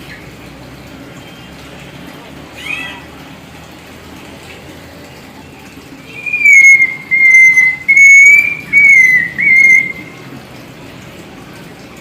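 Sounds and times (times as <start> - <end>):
myna whistling notes: 6.1 - 10.1.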